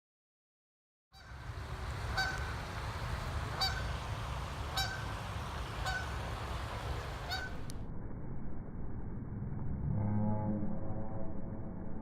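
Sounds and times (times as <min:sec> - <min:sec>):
low rumble: 0:01.4 - 0:12.0
goose honking: 0:02.1 - 0:02.5, 0:03.5 - 0:04.0, 0:04.7 - 0:06.3, 0:07.0 - 0:07.6.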